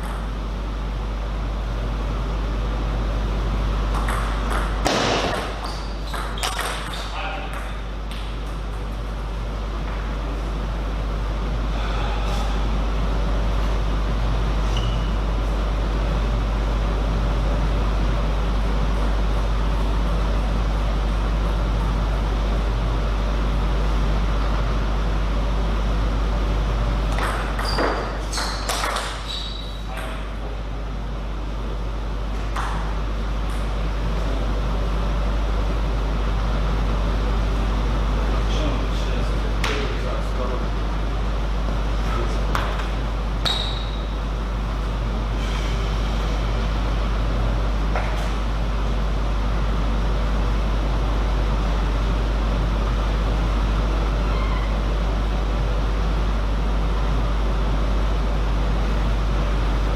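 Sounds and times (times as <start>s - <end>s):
deep constant hum: 0.0s - 59.9s.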